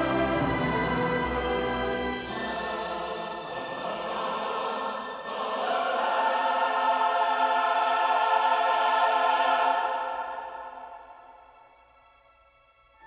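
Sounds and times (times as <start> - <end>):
orchestral film music: 0.0 - 6.8
choir holding a chord: 0.0 - 11.4.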